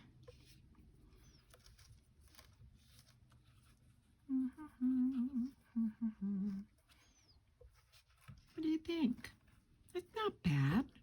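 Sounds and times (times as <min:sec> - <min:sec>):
faint paper rustling: 0:00.0 - 0:04.3, 0:06.5 - 0:10.8
woman humming: 0:04.3 - 0:06.7.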